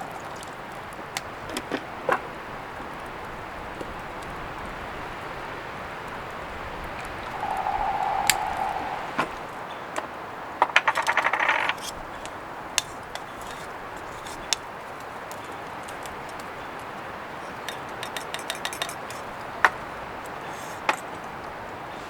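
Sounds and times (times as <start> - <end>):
background hiss: 7.3 - 9.5.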